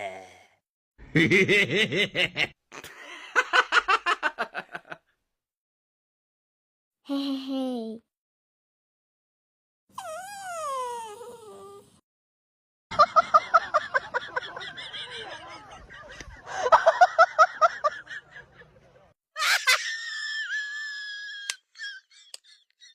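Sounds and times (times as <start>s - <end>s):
dog whining: 9.9s - 12.0s.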